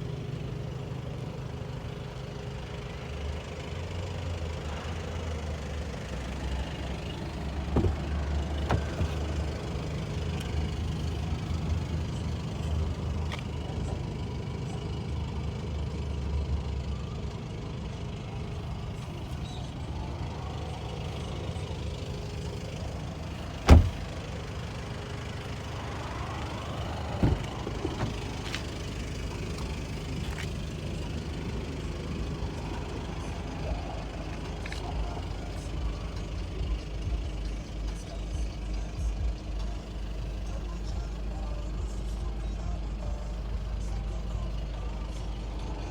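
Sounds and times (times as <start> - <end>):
diesel engine idling: 0.0 - 45.9
loud sharp thump: 7.8 - 8.1, 23.7 - 24.0
small knock: 7.8 - 8.1.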